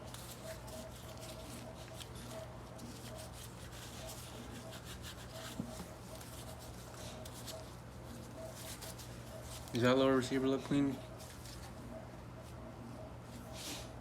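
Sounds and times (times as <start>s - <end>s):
bristle brush scratching: 0.0s - 9.8s.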